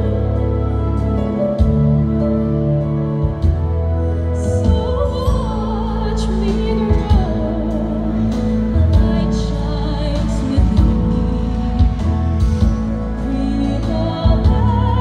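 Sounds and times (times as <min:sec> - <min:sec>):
instrumental accompaniment: 0:00.0 - 0:15.0
woman singing operatically: 0:04.4 - 0:12.2, 0:13.1 - 0:15.0.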